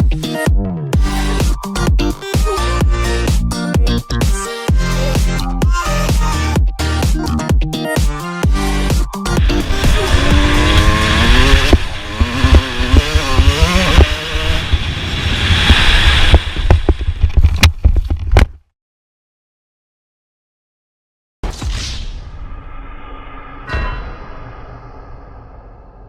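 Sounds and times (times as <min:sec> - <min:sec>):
motocross bike engines revving: 0:09.4 - 0:14.8.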